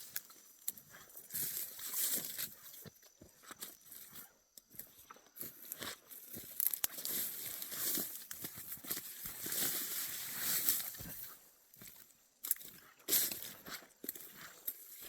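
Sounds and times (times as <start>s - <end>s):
walking through rustling vegetation: 0.0s - 15.0s
snapping and crunching stems: 6.3s - 7.3s.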